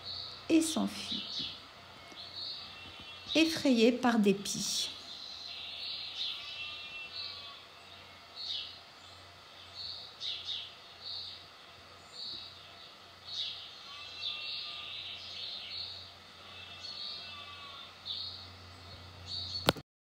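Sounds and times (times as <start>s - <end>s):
faint low hum: 0.0s - 19.8s
raspy bird calls: 4.8s - 11.4s, 12.0s - 18.5s.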